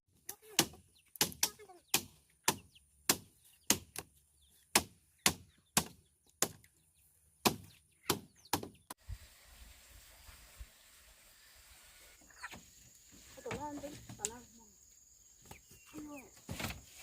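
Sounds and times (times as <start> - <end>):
blade chopping bamboo: 0.4 - 4.1, 4.7 - 6.6, 7.4 - 8.7
faint outdoor hiss: 9.0 - 17.0.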